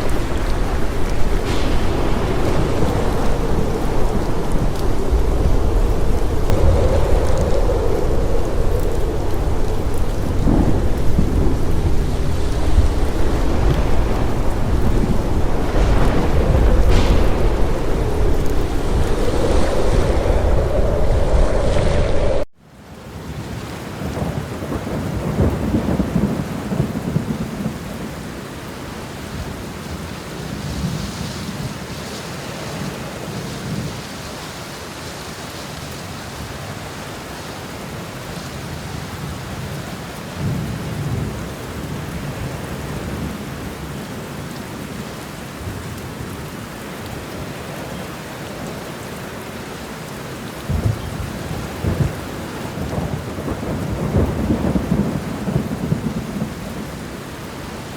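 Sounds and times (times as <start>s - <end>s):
short low booms: 0.0s - 7.6s, 8.3s - 22.5s
heavy rain on car windows: 0.0s - 20.2s, 23.0s - 57.9s
low thunder rumbling: 0.0s - 22.5s, 23.8s - 28.3s, 38.8s - 44.0s, 50.4s - 57.9s.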